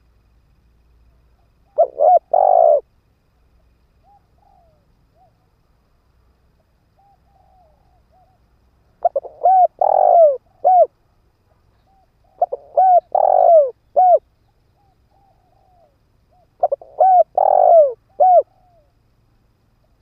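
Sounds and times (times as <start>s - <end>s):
soft low dove notes: 1.1s - 2.9s, 11.8s - 18.9s
dove cooing: 1.4s - 2.9s, 4.0s - 5.4s, 7.0s - 8.4s, 9.0s - 11.0s, 11.8s - 18.9s.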